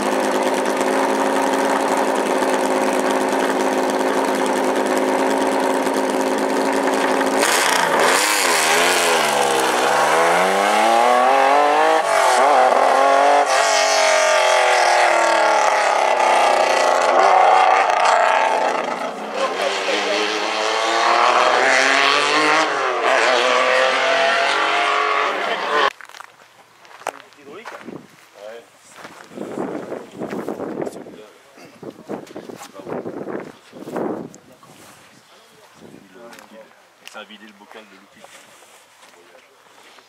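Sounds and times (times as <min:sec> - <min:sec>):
rally car engine revving away: 0:00.0 - 0:25.9.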